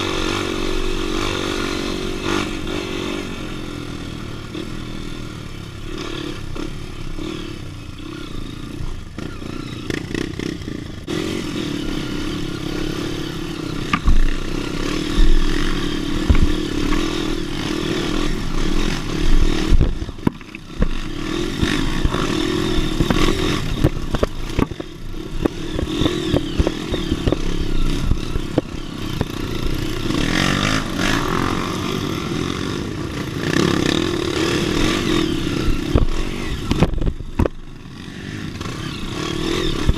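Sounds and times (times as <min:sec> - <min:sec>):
dirt bike engine revving: 0:00.0 - 0:39.9
bike knocking and clattering: 0:13.8 - 0:17.4, 0:19.1 - 0:30.6, 0:35.7 - 0:37.7
heavy thumps: 0:13.9 - 0:14.4, 0:16.2 - 0:17.0, 0:19.6 - 0:21.0.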